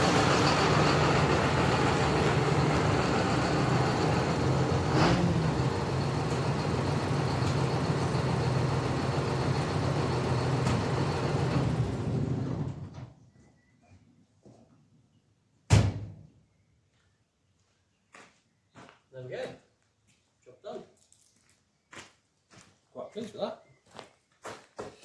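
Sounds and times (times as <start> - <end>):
vehicle engine running: 0.0 - 12.9.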